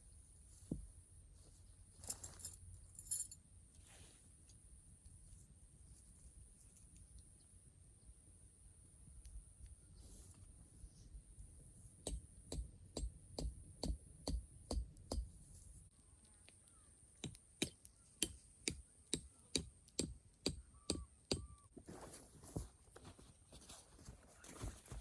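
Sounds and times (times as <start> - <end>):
sharp knocking strikes on wood: 12.0 - 15.3
bird chirps: 20.6 - 21.7.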